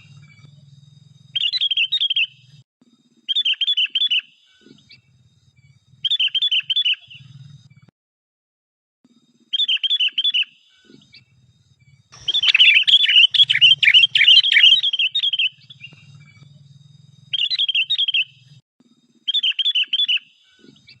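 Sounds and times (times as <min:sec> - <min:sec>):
birds chirping and singing: 0:01.4 - 0:02.5, 0:06.0 - 0:07.3, 0:12.2 - 0:16.5, 0:17.3 - 0:18.6.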